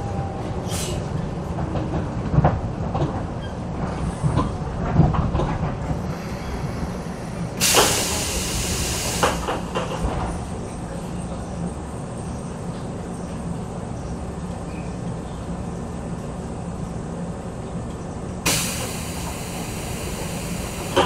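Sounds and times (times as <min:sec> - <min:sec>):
train wheels rumbling: 0:00.0 - 0:21.0
loud air hiss: 0:07.6 - 0:09.7, 0:18.5 - 0:21.0.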